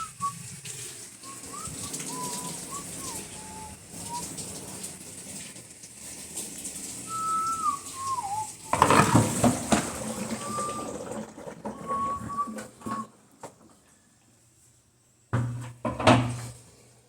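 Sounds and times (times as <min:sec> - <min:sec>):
person whistling: 0:00.0 - 0:00.4, 0:01.2 - 0:04.3, 0:07.1 - 0:09.0, 0:10.4 - 0:11.0, 0:11.7 - 0:13.1.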